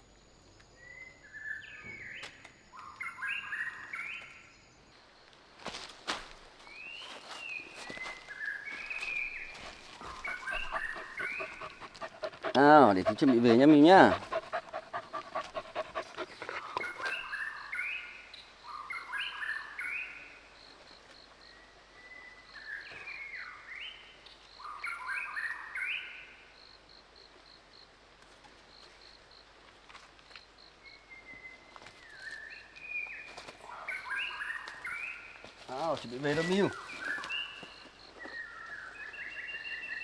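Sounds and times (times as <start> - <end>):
bird singing: 0.0 - 5.0, 6.7 - 20.8, 21.4 - 26.4, 30.8 - 40.0
dog panting: 9.4 - 17.3.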